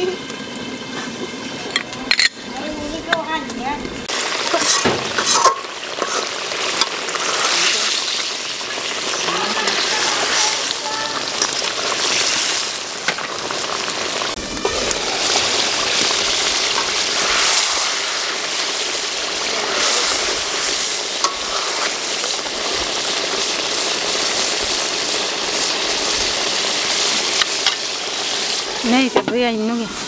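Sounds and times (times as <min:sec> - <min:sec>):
fish frying in a wok: 0:00.0 - 0:30.0
metal spatula scraping: 0:04.5 - 0:07.7, 0:19.6 - 0:22.0.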